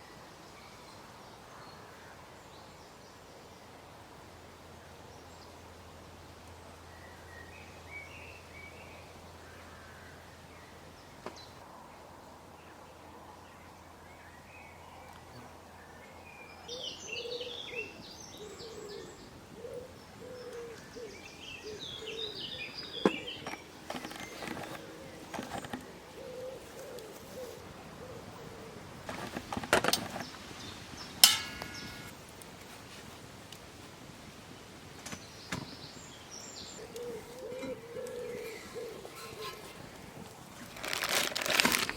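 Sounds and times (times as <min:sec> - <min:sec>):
birds chirping: 0:14.2 - 0:32.3, 0:35.0 - 0:41.5
metallic clink: 0:31.2 - 0:32.1.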